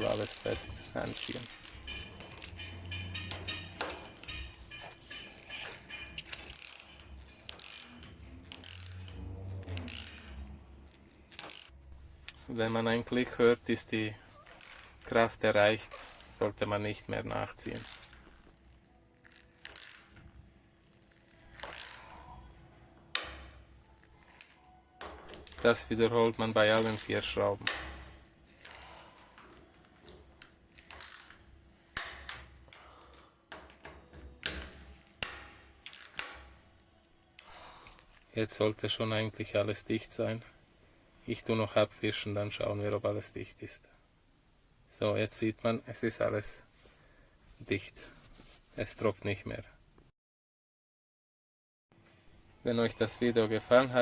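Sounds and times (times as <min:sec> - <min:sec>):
ratchet-like clatters: 0:00.0 - 0:09.2, 0:09.8 - 0:10.4, 0:11.3 - 0:12.4, 0:19.6 - 0:20.2
torque wrench ratcheting: 0:06.2 - 0:09.1, 0:09.9 - 0:10.4, 0:11.4 - 0:11.8, 0:19.6 - 0:20.1.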